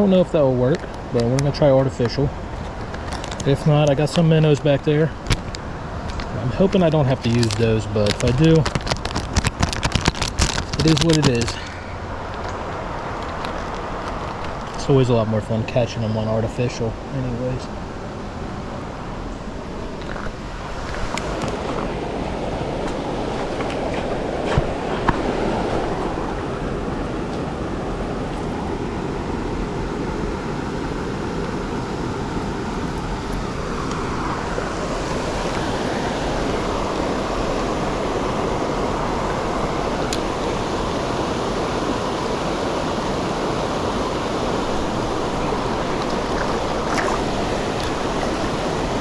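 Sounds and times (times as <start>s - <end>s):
fast-flowing creek water: 10.6s - 49.0s.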